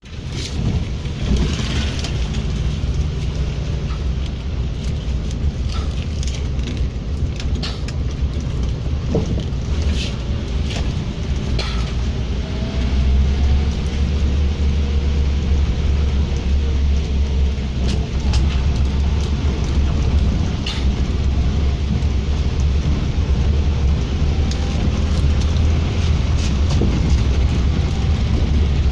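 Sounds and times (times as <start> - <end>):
ferry engines rumbling: 0.0 - 28.9.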